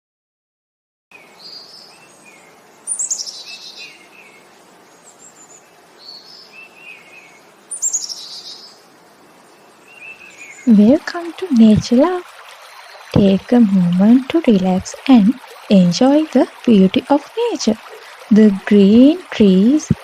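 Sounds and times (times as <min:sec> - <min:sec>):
faint background hiss: 0:01.1 - 0:20.0
songbirds singing: 0:01.1 - 0:20.0
quieter bird chirps: 0:01.3 - 0:04.4, 0:05.0 - 0:08.8.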